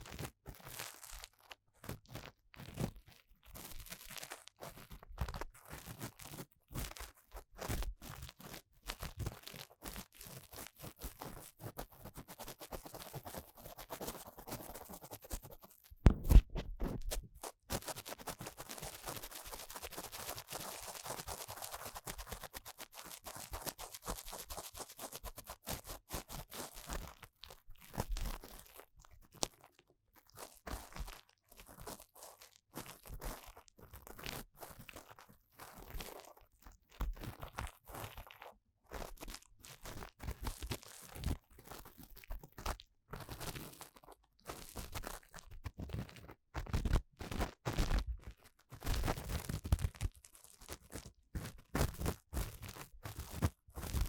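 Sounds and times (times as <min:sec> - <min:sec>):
ear tool scraping microphone: 0:15.9 - 0:17.4
loud bump against microphone: 0:16.0 - 0:17.1.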